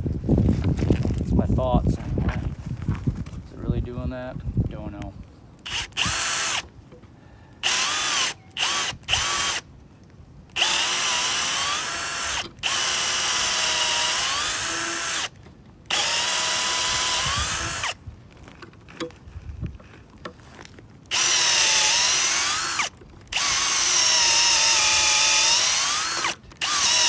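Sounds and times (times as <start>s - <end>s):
power drill boring into wood: 5.7s - 6.6s, 7.6s - 9.6s, 10.6s - 15.3s, 15.9s - 18.0s, 21.1s - 27.0s.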